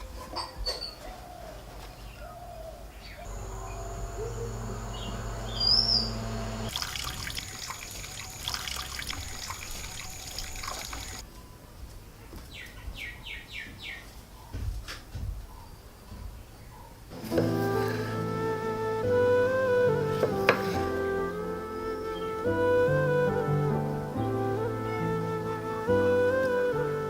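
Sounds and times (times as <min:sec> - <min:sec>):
small birds chirping: 0:00.1 - 0:14.8
water running and splashing: 0:06.7 - 0:11.2.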